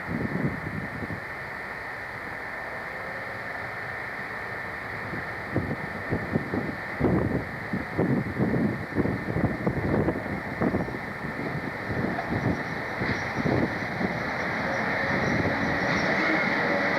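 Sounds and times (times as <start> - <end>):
wind buffeting microphone: 0.0 - 1.3, 5.0 - 16.9
tape hiss: 0.0 - 16.9.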